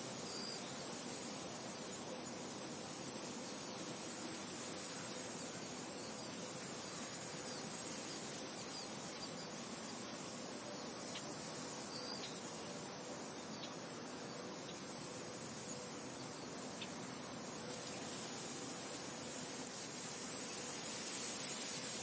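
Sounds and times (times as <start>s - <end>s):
faint high chirps: 8.6s - 12.6s.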